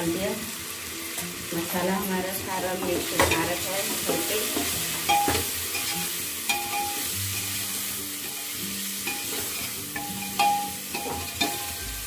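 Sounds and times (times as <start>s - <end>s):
spices sizzling in a pan: 0.0s - 12.0s
metal spatula scraping a pan: 3.2s - 12.0s.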